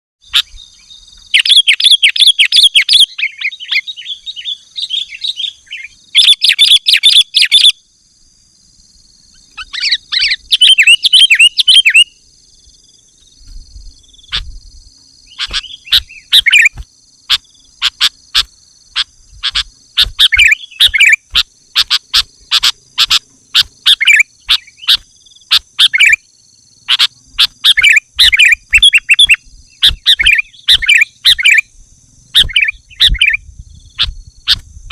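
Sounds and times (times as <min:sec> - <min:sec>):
bulbul singing chattering phrases: 0:09.3 - 0:12.3, 0:14.0 - 0:31.7, 0:32.4 - 0:34.8
sharp bird call notes: 0:15.3 - 0:26.2.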